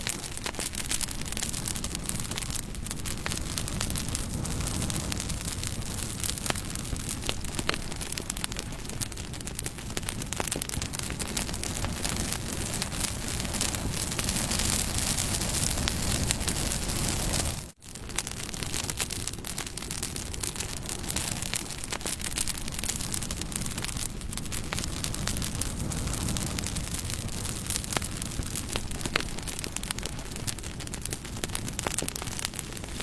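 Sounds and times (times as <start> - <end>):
campfire crackling and popping: 0.0 - 33.0.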